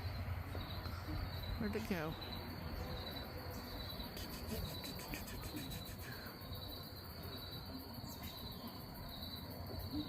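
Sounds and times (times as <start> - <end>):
faint low background noise: 0.0 - 10.0
insects trilling: 0.0 - 10.0.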